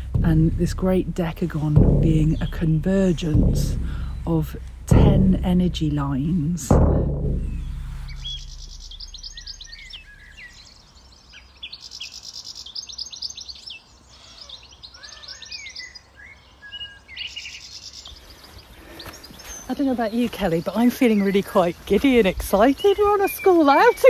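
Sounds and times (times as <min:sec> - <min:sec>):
low note: 0:00.0 - 0:10.1
songbirds trilling and chirping: 0:00.0 - 0:24.0.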